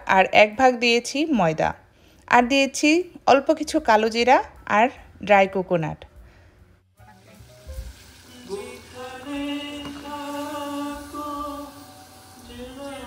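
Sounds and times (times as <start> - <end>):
batter sizzling in hot oil: 7.1 - 13.0
person singing: 8.2 - 13.0.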